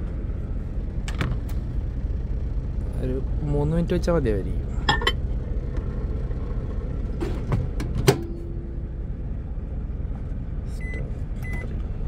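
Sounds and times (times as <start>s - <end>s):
low engine hum: 0.0s - 12.0s
short electronic beeps: 10.8s - 11.7s.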